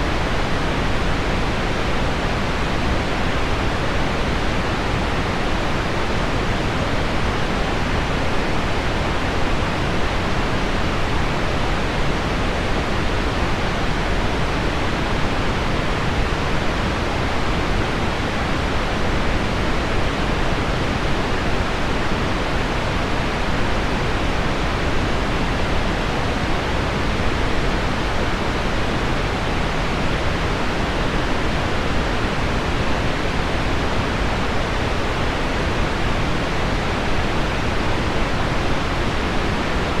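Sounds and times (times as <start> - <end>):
low pink noise: 0.0 - 40.0.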